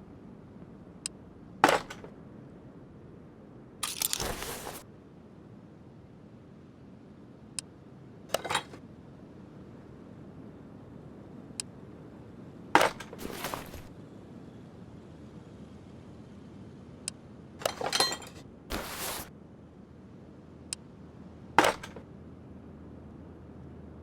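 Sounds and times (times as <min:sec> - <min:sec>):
metal clinking and rattling: 0:03.8 - 0:04.8, 0:17.6 - 0:19.3.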